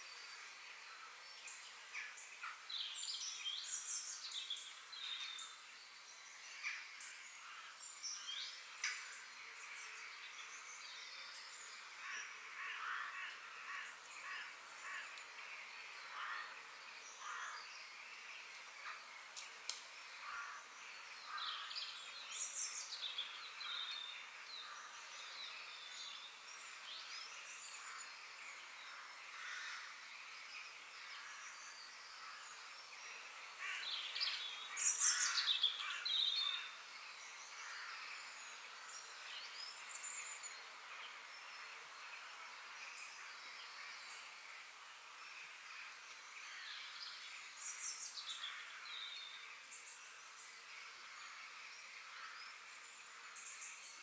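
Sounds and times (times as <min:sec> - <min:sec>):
faint steady hiss: 0:00.0 - 0:54.0
wild birds chirping: 0:00.0 - 0:54.0.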